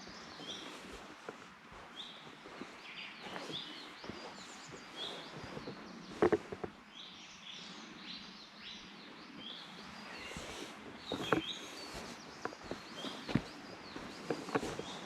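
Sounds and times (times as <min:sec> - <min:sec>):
footsteps on a trail: 0:00.0 - 0:06.8, 0:09.6 - 0:15.0
small birds chirping: 0:00.0 - 0:15.0.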